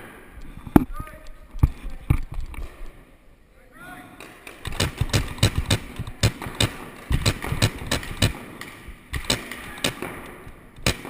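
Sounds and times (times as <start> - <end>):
paintball markers firing: 4.2 - 11.0.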